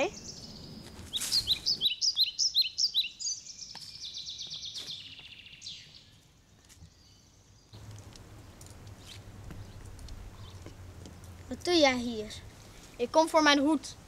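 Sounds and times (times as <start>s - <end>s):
bird trilling chirps: 0.0s - 6.2s.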